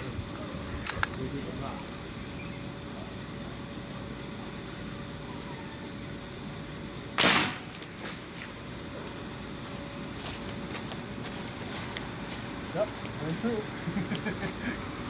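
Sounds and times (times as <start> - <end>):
air rifle shot: 7.2 - 7.7.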